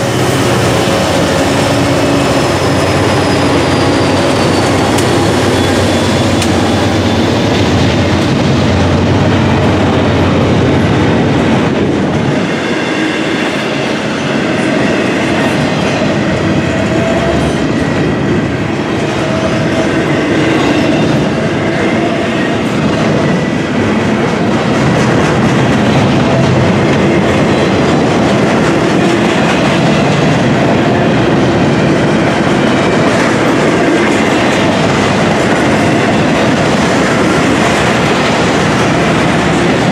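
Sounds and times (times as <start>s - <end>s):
wheels squealing on rail: 0.0s - 10.3s, 12.2s - 23.6s
train wheels clattering over rail joints: 0.0s - 39.9s.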